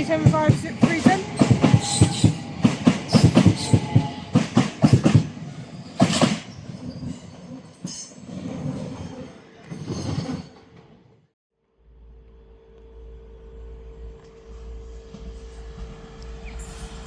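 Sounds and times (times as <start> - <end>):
train rumble: 0.0 - 11.1, 11.9 - 17.0
train wheels clicking over rail joints: 0.1 - 7.1.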